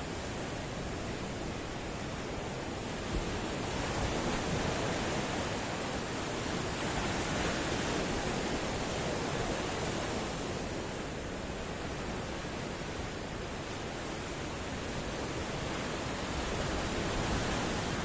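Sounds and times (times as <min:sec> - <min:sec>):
ocean waves washing on shore: 0:00.0 - 0:18.0.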